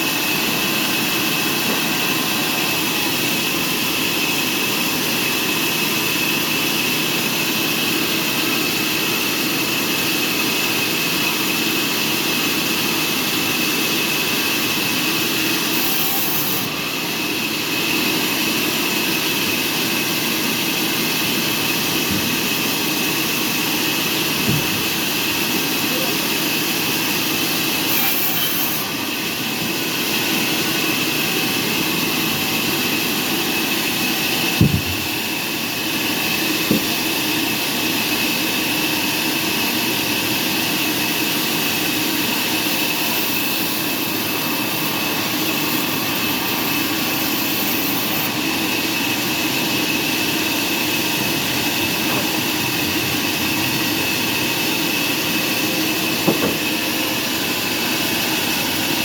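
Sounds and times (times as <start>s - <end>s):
sawmill machinery whining: 0.0s - 59.0s
sharp knocks: 24.4s - 24.9s, 34.6s - 35.2s, 36.7s - 37.0s, 56.2s - 56.8s.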